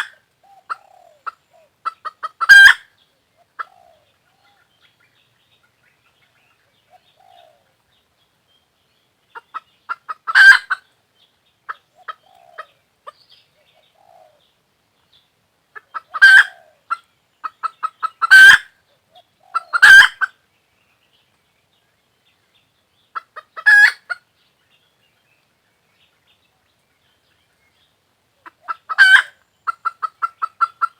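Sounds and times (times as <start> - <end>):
hen cackling and squawking: 0.0 - 5.8, 9.3 - 10.9, 11.7 - 14.4, 15.7 - 20.4, 23.1 - 24.3, 28.4 - 30.9.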